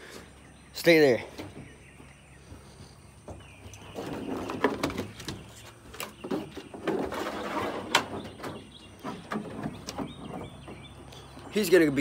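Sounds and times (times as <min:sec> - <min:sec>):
puppy knocking and scraping: 0:03.2 - 0:11.0.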